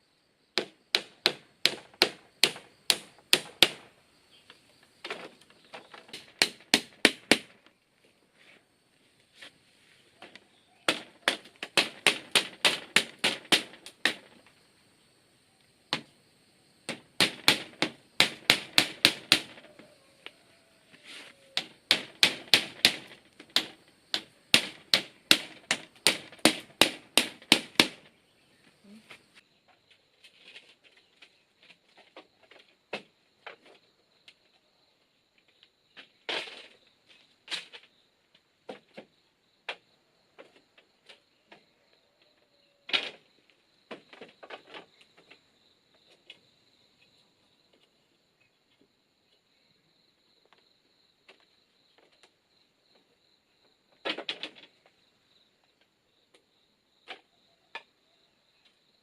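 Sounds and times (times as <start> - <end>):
hand tool knocking on bamboo: 0.6 - 3.9, 5.8 - 7.6, 10.2 - 14.4, 16.9 - 19.8, 21.6 - 28.1.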